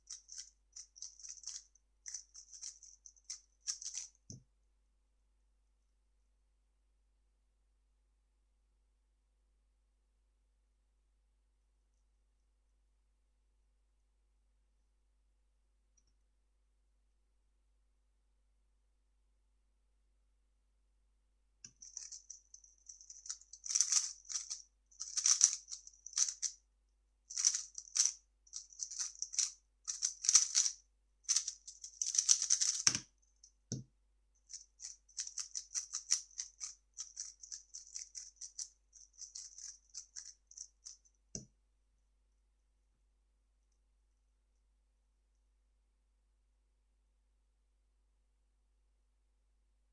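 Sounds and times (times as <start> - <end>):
puzzle cube clicking and rattling: 0.0 - 4.2, 21.7 - 26.6, 27.3 - 33.1, 34.4 - 41.0.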